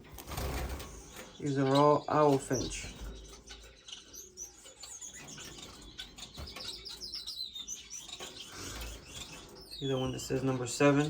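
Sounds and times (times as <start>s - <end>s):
finches chirping: 0.0s - 11.0s.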